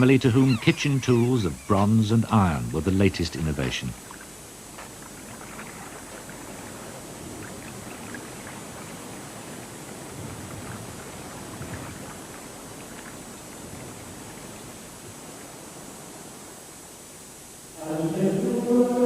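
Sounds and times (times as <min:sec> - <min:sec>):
gentle water wash: 0:00.0 - 0:19.0
small water splashes: 0:03.7 - 0:15.5.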